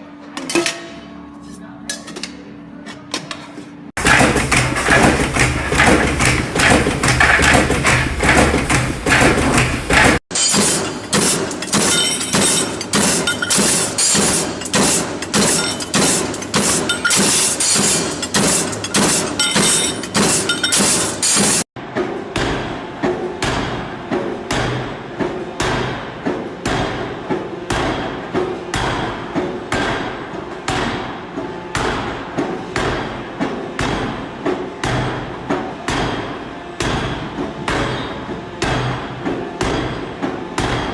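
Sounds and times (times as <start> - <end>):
machine hum: 4.0 - 21.7
power hammers striking metal: 4.0 - 21.7, 22.3 - 34.2, 34.8 - 40.9.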